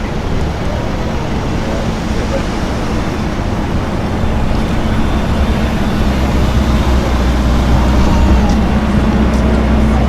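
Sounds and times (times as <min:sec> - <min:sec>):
street traffic noise: 0:00.0 - 0:10.0
vehicle engine running: 0:00.0 - 0:10.0.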